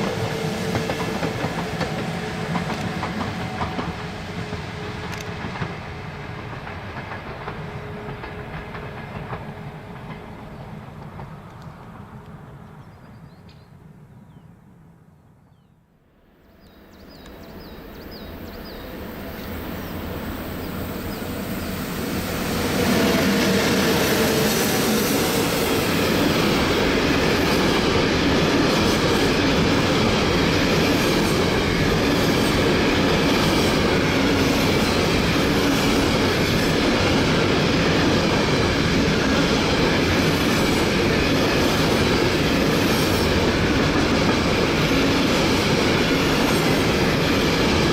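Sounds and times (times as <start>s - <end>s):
train wheels clattering on track: 0.0s - 12.4s, 17.1s - 47.9s.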